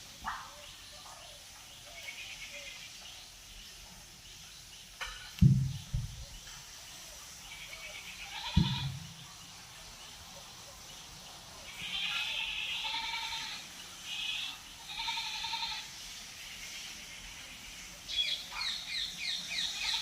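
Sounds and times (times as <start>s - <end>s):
bleating calls: 2.0s - 2.9s, 7.5s - 9.1s, 11.6s - 15.9s, 19.6s - 20.0s
heavy low thumps: 5.4s - 6.3s.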